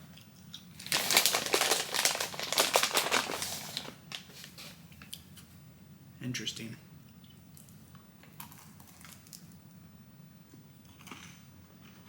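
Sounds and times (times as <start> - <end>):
snack packaging crinkling: 0.7 - 4.6.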